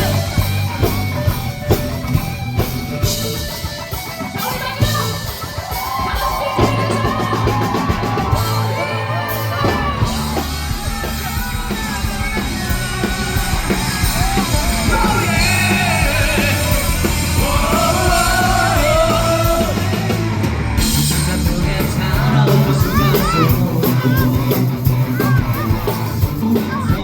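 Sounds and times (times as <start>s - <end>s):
live rock band: 0.0s - 27.0s
person yelling: 22.7s - 24.4s.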